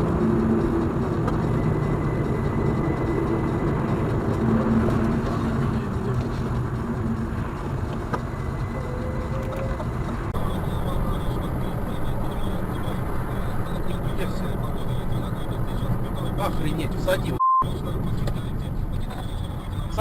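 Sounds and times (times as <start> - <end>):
car engine rumble: 0.0 - 20.0
road noise: 0.0 - 20.0.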